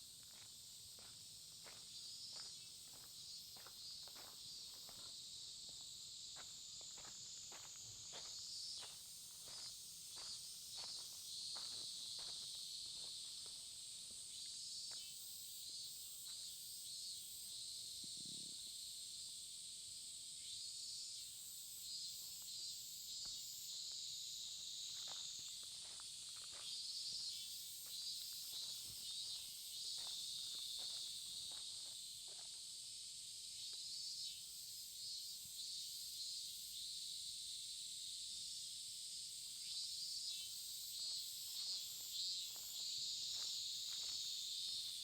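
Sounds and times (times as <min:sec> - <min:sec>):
insects trilling: 0:00.0 - 0:45.0
footsteps walking: 0:00.2 - 0:13.6, 0:25.0 - 0:27.3, 0:28.5 - 0:32.5, 0:42.5 - 0:44.3.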